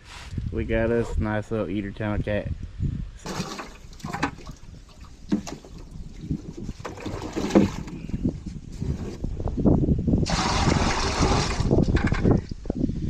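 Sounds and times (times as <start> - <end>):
wind rumbling on microphone: 0.0 - 13.0
knocks and clunks: 3.2 - 4.6, 5.2 - 8.1.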